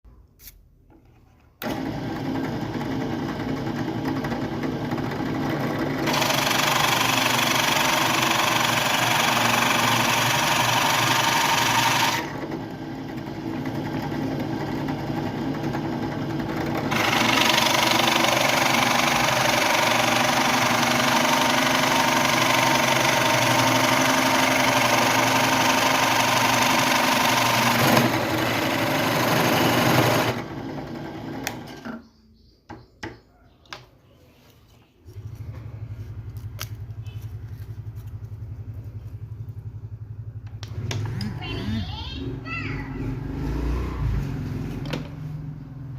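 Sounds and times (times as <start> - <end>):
power tool motor running: 1.6 - 31.8.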